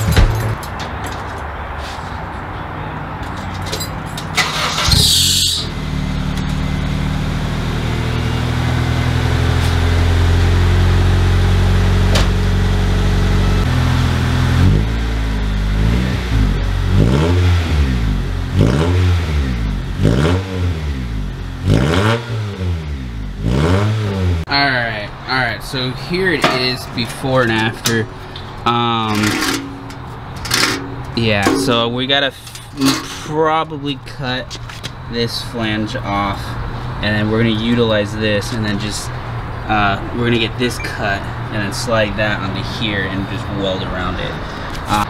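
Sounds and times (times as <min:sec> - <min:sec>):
car engine idling and revving: 0:02.2 - 0:31.2.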